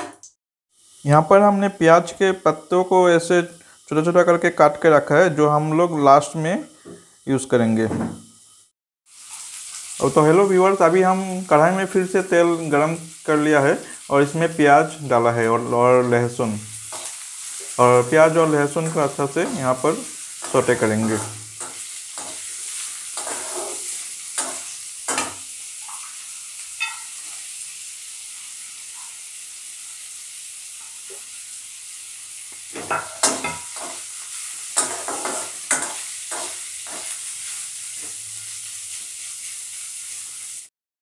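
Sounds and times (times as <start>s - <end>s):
onion sizzling in hot oil: 0.0s - 40.7s
wooden spatula scraping a pan: 20.4s - 26.1s, 34.8s - 38.3s.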